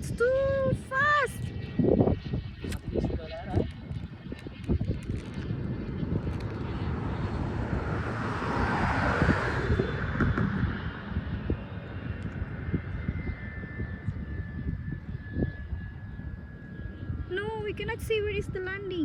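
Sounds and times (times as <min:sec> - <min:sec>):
wind buffeting microphone: 0:00.0 - 0:19.0
zip line trolley whizzing on cable: 0:03.6 - 0:12.5.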